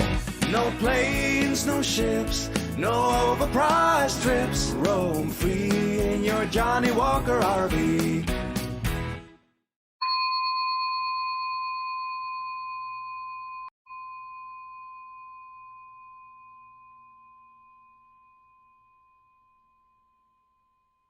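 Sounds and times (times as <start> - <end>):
bell-like chime ringing: 10.0 - 21.0.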